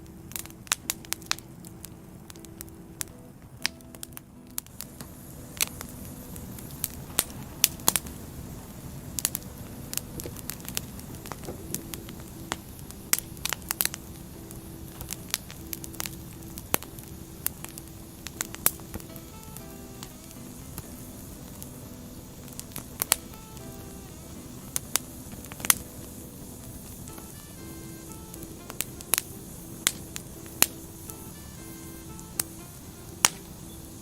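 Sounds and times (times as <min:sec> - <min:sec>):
faint steady tone: 0:00.0 - 0:34.0
firewood crackling and popping: 0:00.0 - 0:34.0
flames rushing: 0:04.0 - 0:34.0.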